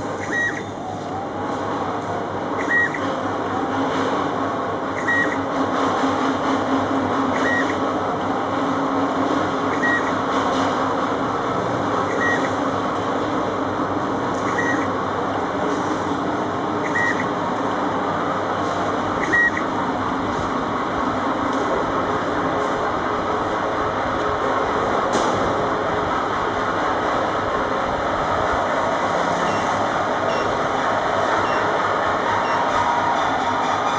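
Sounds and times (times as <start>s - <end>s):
machine whirring and rattling: 0.0s - 33.9s.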